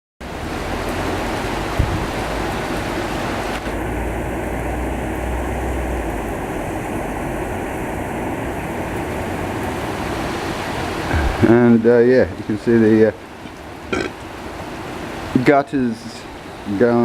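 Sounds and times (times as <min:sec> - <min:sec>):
heavy rain pouring: 0:00.2 - 0:17.0
short low thump: 0:11.1 - 0:11.6.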